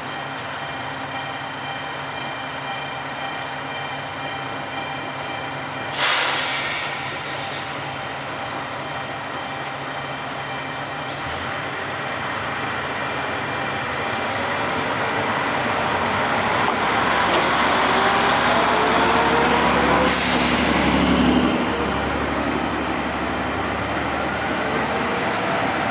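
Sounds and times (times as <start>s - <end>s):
diesel railcar engine whine: 0.0s - 25.9s
air brake hiss: 5.9s - 7.8s, 20.0s - 21.4s.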